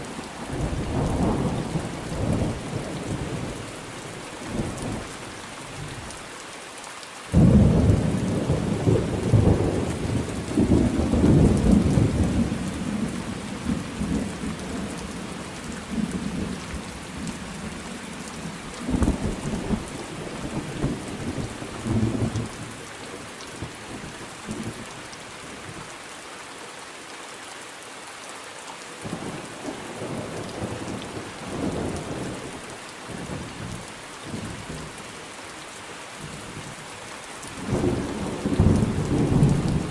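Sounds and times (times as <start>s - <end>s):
steady rain falling: 0.0s - 39.9s
thunder clap and rumble: 18.8s - 22.5s, 37.6s - 39.9s.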